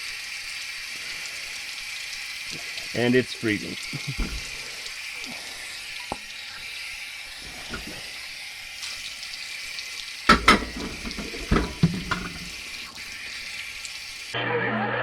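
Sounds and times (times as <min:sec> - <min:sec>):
water running from faucet: 0:00.0 - 0:14.4
objects knocking and clattering: 0:04.2 - 0:04.6, 0:07.7 - 0:08.0, 0:10.3 - 0:13.5.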